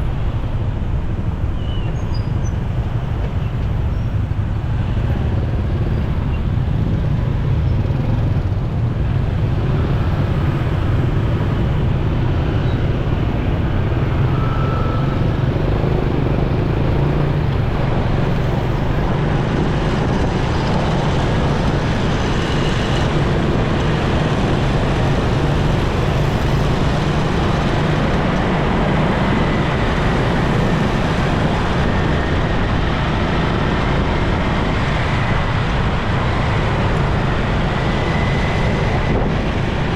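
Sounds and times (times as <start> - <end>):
road and traffic noise: 0.0 - 39.9
wind on microphone: 0.0 - 39.9.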